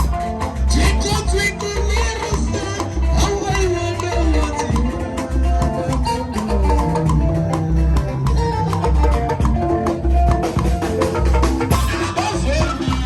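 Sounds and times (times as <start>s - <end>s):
live band playing upbeat tune: 0.0s - 13.0s
heavy bass pulse: 3.1s - 10.8s.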